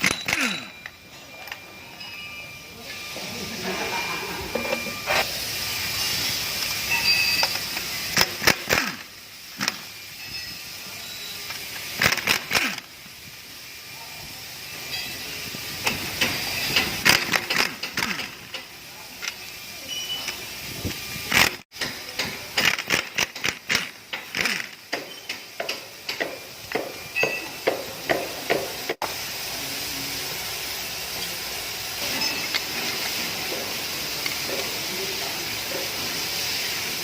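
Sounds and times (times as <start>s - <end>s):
steady hiss: 0.4s - 37.0s
metallic clicks and knocks of tools: 21.3s - 28.6s.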